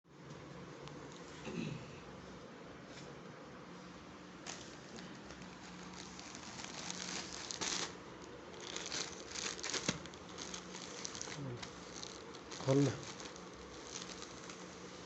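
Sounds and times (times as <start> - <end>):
plastic packaging crinkling: 4.4 - 15.0.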